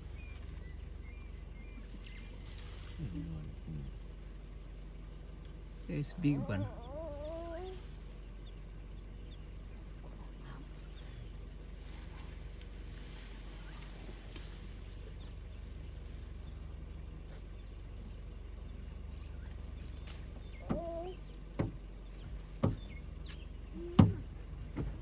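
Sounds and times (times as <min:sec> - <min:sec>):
birds chirping: 0:00.0 - 0:25.0
low hum: 0:00.0 - 0:25.0
sharp knocks: 0:21.6 - 0:21.8, 0:22.6 - 0:22.9, 0:24.0 - 0:24.2.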